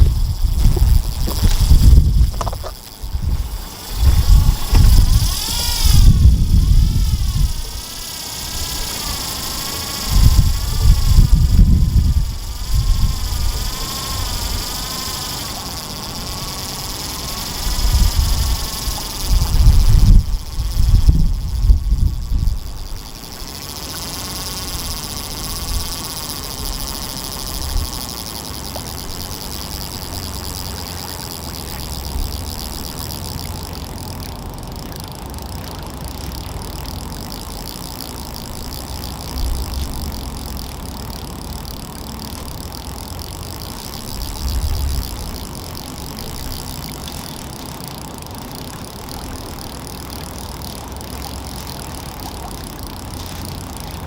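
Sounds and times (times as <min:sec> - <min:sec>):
wind buffeting microphone: 0:00.0 - 0:23.2, 0:44.0 - 0:45.6
steady outdoor hiss: 0:00.0 - 0:54.0.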